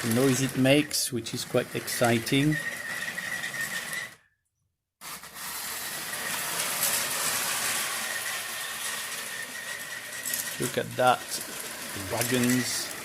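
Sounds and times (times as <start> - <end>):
toy train motor whirring: 0.0 - 4.2, 5.0 - 13.0.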